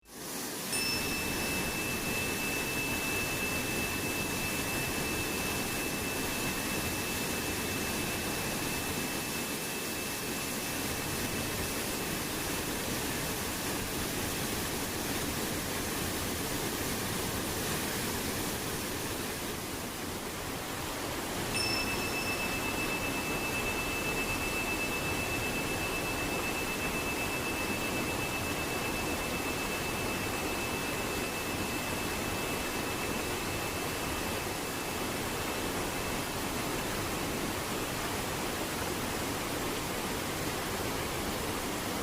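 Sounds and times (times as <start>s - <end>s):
running water: 0.1s - 42.0s
tingsha ringing: 0.7s - 11.8s, 21.5s - 35.2s.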